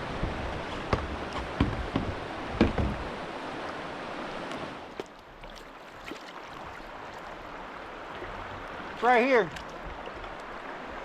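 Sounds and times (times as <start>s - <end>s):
rushing river water: 0.0s - 11.0s
sharp knocks: 0.9s - 3.1s.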